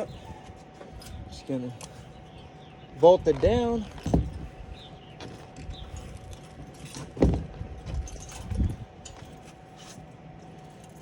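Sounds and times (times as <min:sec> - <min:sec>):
faint steady hum: 0:00.0 - 0:11.0
heavy thump: 0:07.2 - 0:08.0.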